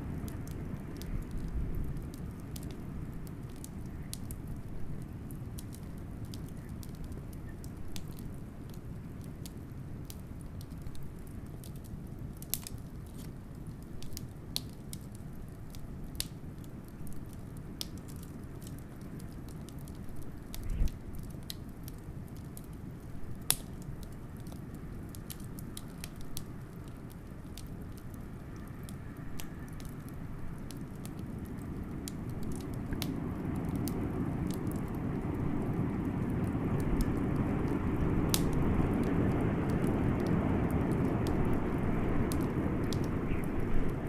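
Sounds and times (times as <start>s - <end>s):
wood fire crackling: 0.0s - 44.0s
blizzard wind rumble: 27.9s - 44.0s.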